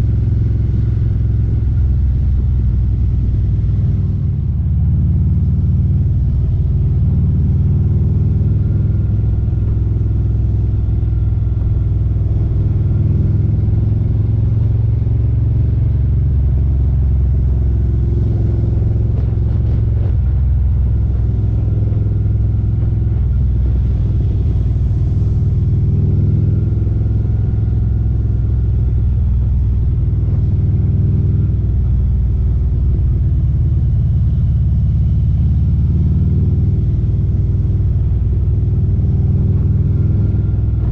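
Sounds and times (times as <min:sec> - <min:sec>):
motorcycle exhaust rumbling: 0:00.0 - 0:40.9.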